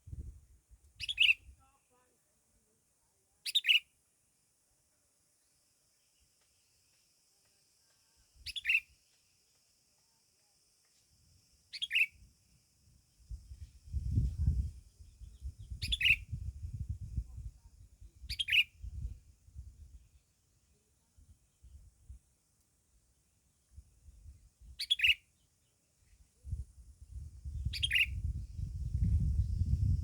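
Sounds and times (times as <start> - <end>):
bird chirping: 1.0 - 1.5, 3.4 - 3.8, 8.4 - 8.9, 11.7 - 12.2, 15.0 - 16.4, 18.3 - 18.7, 24.8 - 25.8, 27.4 - 30.0.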